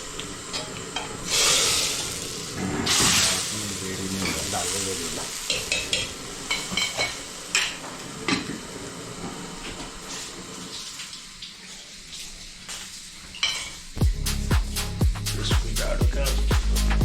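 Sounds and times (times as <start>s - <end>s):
faint steady hiss: 0.0s - 14.0s
dishes and utensils clinking: 5.5s - 8.6s, 13.3s - 13.9s
music: 14.0s - 17.0s.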